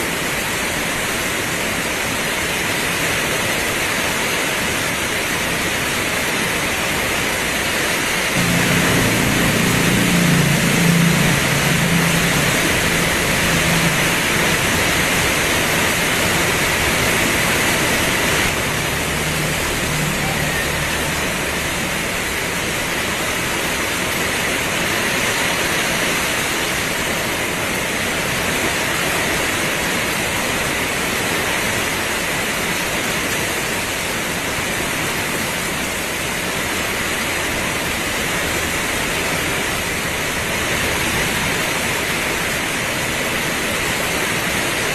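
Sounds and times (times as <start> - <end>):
heavy rain pouring: 0.0 - 44.9
low hum: 8.4 - 23.5.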